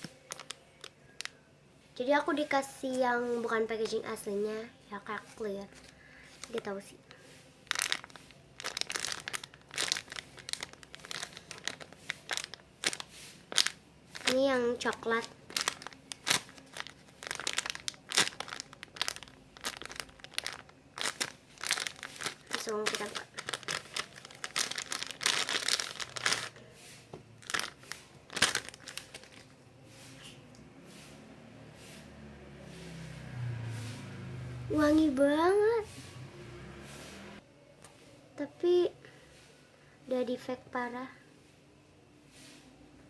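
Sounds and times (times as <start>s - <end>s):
plastic packaging crinkling: 0.0s - 1.4s, 5.3s - 26.6s, 27.4s - 29.6s.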